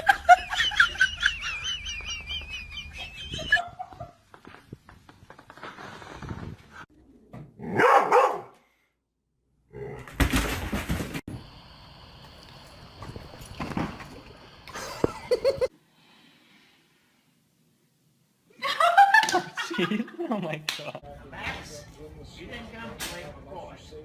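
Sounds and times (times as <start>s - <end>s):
dog barking: 7.6s - 8.6s.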